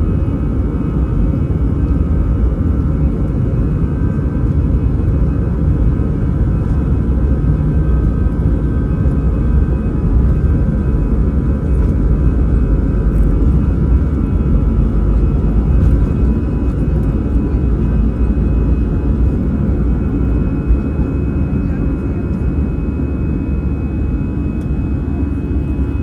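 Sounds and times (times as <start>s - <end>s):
jet engine deep rumble: 0.0s - 26.0s.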